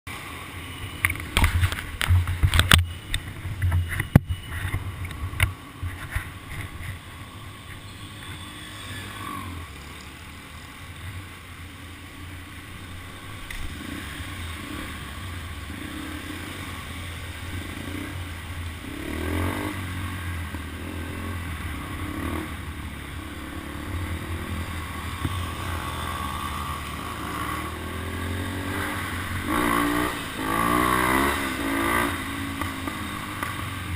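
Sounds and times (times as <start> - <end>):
motorcycle engine revving: 6.4 - 10.7, 12.4 - 33.9.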